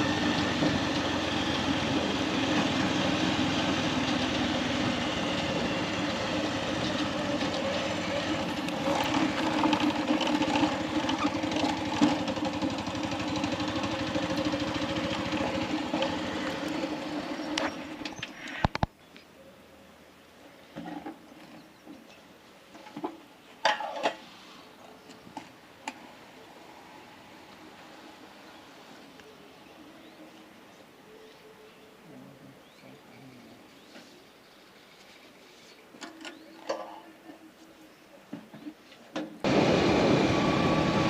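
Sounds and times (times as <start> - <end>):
motorcycle engine running: 0.0 - 18.0, 39.5 - 41.0
road noise: 0.0 - 19.0, 23.7 - 31.0, 39.4 - 41.0.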